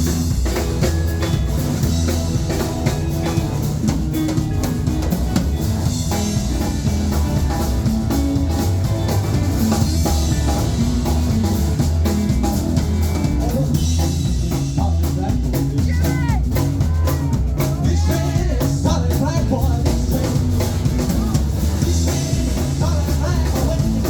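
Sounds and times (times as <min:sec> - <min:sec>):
drum kit beat: 0:00.0 - 0:24.0
rock band playing: 0:00.0 - 0:24.0.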